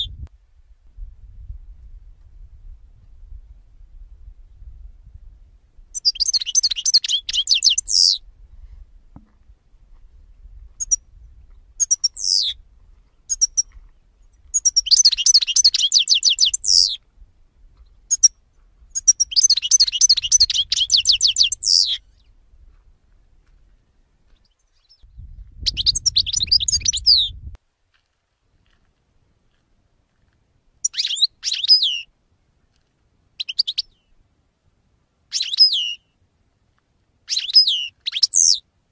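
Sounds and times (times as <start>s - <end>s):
songbirds twittering: 5.9s - 8.3s, 10.8s - 11.1s, 11.7s - 17.0s, 18.9s - 22.4s, 24.2s - 27.4s, 30.8s - 32.1s
low rumble: 25.1s - 27.6s.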